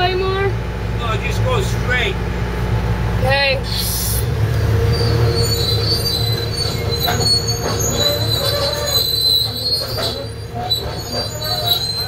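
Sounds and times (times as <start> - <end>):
diesel engine rumble: 0.0 - 12.0
steel tracks squealing: 3.6 - 12.0.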